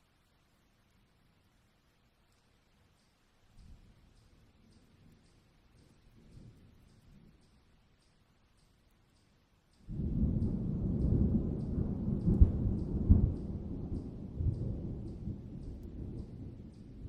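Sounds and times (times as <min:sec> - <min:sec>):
thunder rumbling and cracking: 0:09.9 - 0:17.0.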